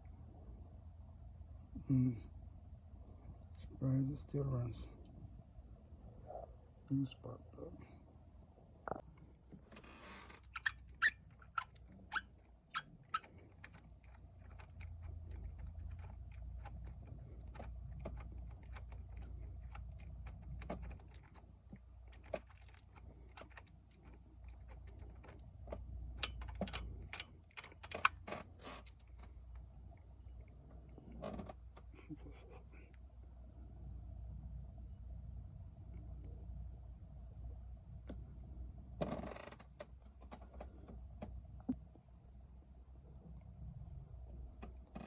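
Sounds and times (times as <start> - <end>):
metallic ratchet clicks: 10.5 - 29.7.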